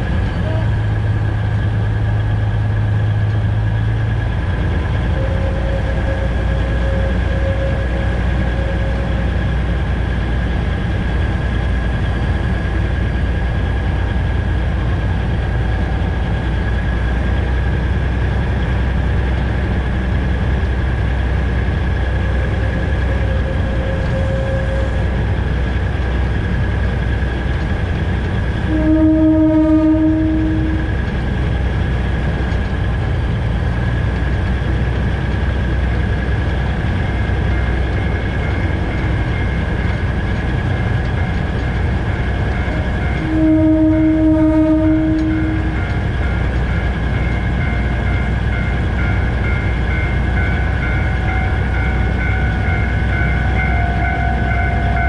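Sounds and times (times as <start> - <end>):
locomotive engine running: 0.0 - 55.0
train horn: 0.3 - 0.9, 5.1 - 9.4, 22.7 - 25.1, 28.6 - 31.1, 42.6 - 46.4, 53.1 - 55.0.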